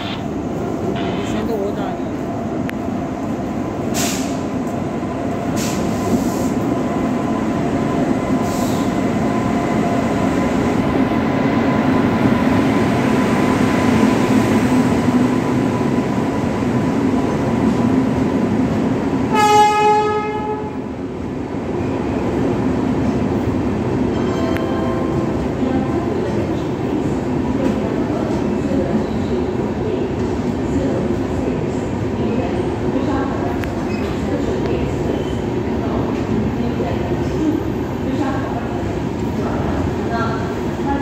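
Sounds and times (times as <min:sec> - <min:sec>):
train wheels rumbling on rail: 0:00.2 - 0:41.0
train horn: 0:19.3 - 0:20.8.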